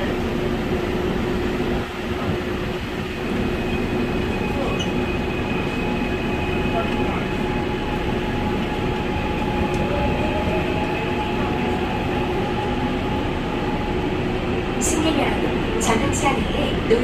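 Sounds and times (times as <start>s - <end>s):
subway train wheels rumbling: 0.0s - 17.0s.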